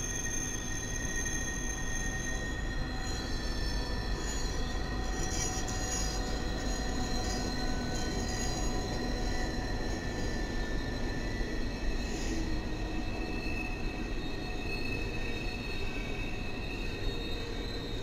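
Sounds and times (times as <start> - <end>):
wheel flange squeal: 0.0 - 18.0.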